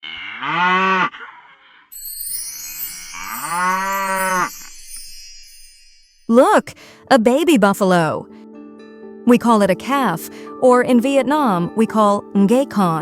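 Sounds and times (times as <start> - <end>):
water buffalo mooing: 3.2 - 4.5.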